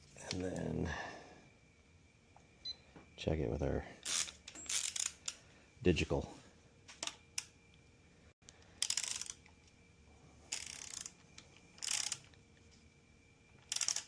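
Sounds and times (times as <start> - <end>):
torque wrench ratchet clicking: 4.0 - 5.4, 8.8 - 9.4, 10.5 - 11.2, 11.8 - 12.3, 13.6 - 14.0.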